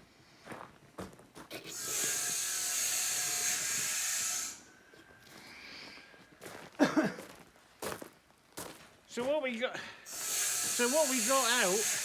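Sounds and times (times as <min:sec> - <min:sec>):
steady hiss: 0:10.1 - 0:12.0.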